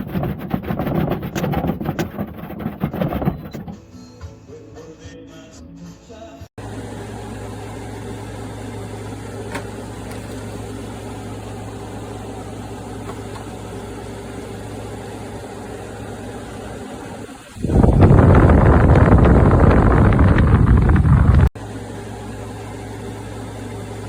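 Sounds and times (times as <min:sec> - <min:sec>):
air conditioner hum: 0:06.6 - 0:24.0.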